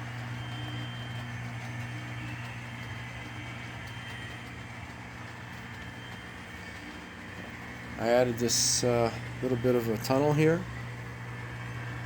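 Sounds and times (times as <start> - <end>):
model train motor hum: 0.0 - 12.0
rail noise: 2.4 - 12.0.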